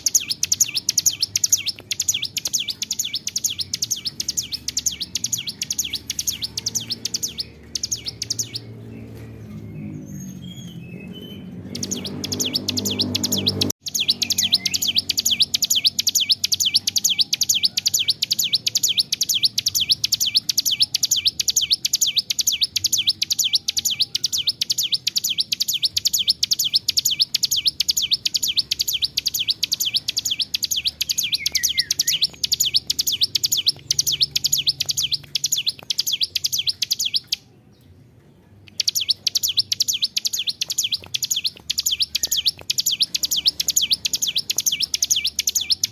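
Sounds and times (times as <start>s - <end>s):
bird singing fast high notes: 9.8s - 37.4s.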